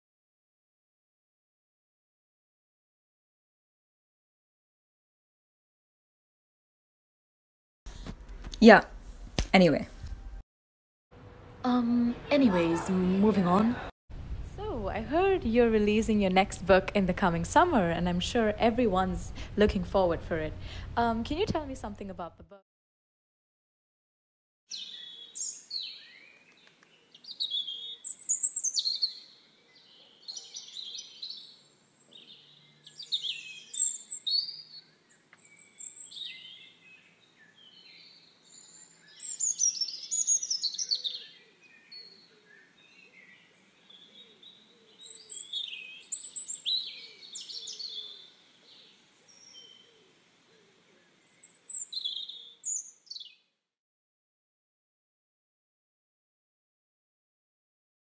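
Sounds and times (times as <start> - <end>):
birds chirping and singing: 24.7 - 53.4.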